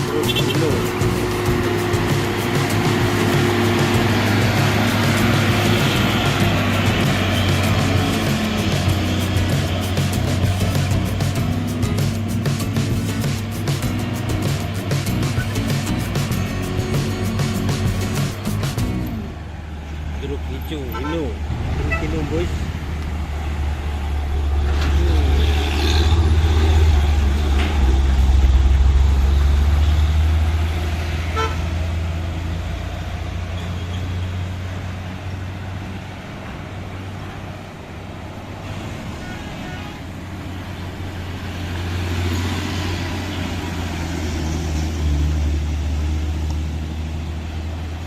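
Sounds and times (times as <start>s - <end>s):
heavy trucks passing: 0.0s - 48.0s
vehicle horn toot: 0.1s - 0.9s, 20.8s - 22.3s, 31.2s - 31.8s, 38.7s - 40.2s.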